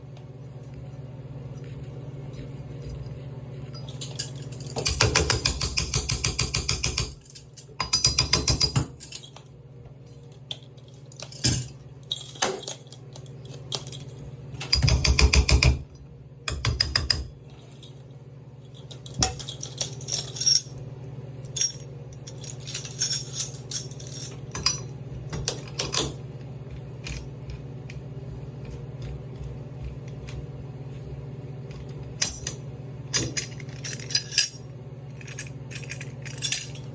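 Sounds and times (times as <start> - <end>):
steady low hum: 0.0 - 36.9
rapid clicking of metal tool: 4.8 - 8.9.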